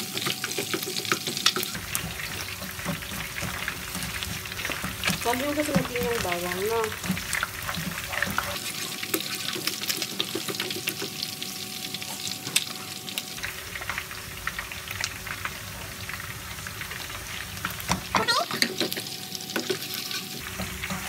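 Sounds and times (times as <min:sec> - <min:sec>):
oil crackles and pops: 0:00.0 - 0:19.8
onion and garlic sizzling in oil: 0:00.0 - 0:21.0
skimmer stirring in wok: 0:00.1 - 0:11.2.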